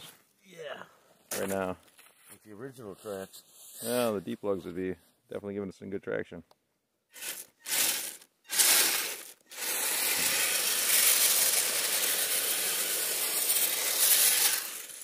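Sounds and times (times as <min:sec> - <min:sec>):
toy car crunching snow and ice: 0:07.1 - 0:15.0.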